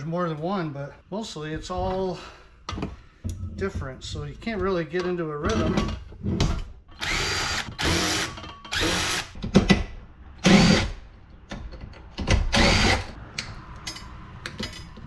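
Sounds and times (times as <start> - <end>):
power drill spinning up: 7.0 - 9.3, 12.6 - 13.1.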